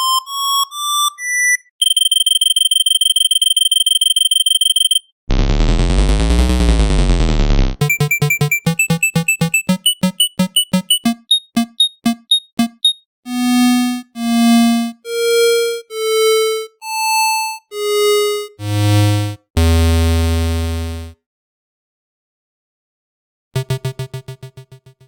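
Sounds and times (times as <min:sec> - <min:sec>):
square-wave synth tones: 0:07.8 - 0:16.6.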